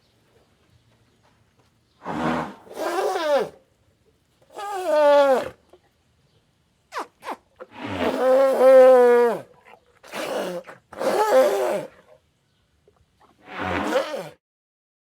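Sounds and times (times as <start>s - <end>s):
elephant trumpeting: 2.0s - 3.6s, 4.5s - 5.6s, 6.9s - 12.0s, 13.4s - 14.4s.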